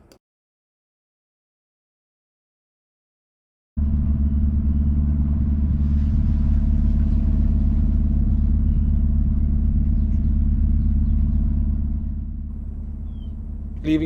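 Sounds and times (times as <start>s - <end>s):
boat diesel engine drone: 3.8s - 14.0s.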